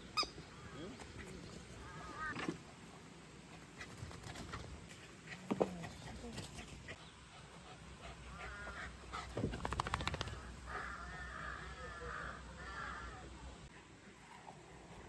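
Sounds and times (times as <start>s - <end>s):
quick run of clicks: 9.4s - 10.5s.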